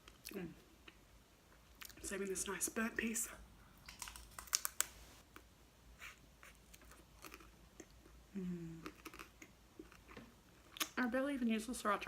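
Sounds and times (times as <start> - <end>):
wet mouth clicks and smacks: 3.8 - 4.9.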